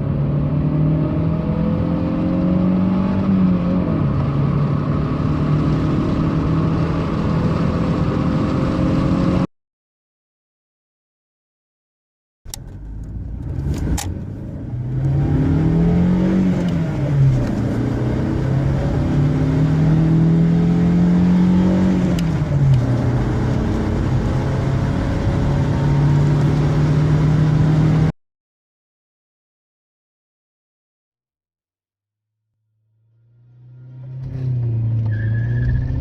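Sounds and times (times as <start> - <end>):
car engine accelerating: 0.0 - 9.5, 12.5 - 28.1, 32.8 - 36.0.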